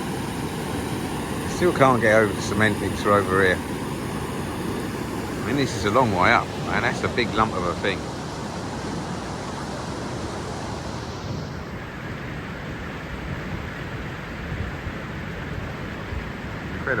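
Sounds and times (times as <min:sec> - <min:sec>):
river rapids rushing: 0:00.0 - 0:11.7.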